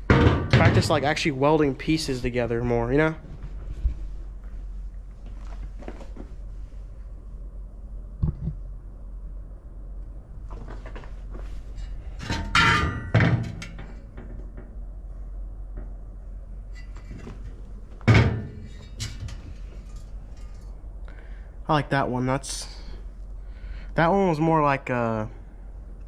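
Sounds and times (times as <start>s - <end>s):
metal pieces clanking: 12.2s - 14.0s.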